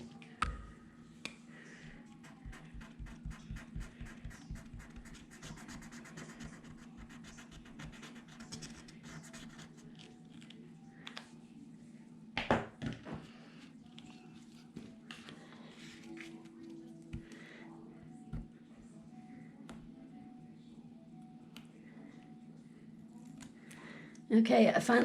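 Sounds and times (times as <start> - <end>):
marker scratching on paper: 2.2 - 9.8.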